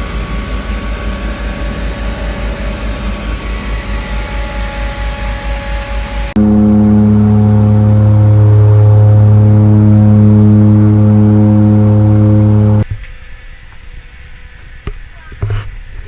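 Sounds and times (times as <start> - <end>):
engine low hum: 0.0 - 12.8.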